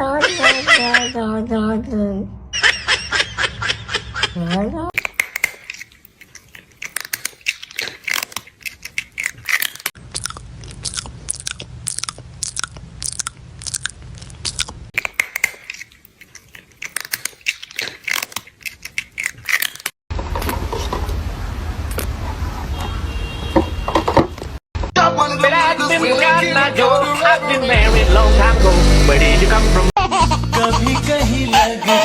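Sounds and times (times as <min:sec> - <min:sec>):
crunchy chewing: 0:05.0 - 0:19.9
low hum: 0:27.7 - 0:30.0
steady rumbling noise: 0:27.8 - 0:29.9.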